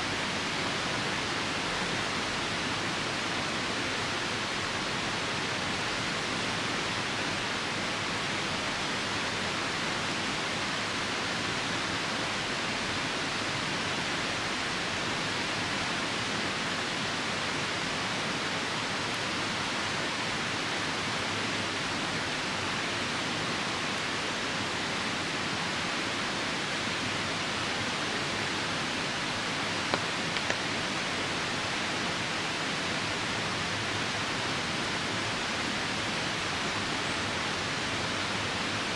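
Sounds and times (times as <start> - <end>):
falling rain: 0.0 - 38.9
river rushing: 0.0 - 38.9
campfire pops: 29.9 - 30.7.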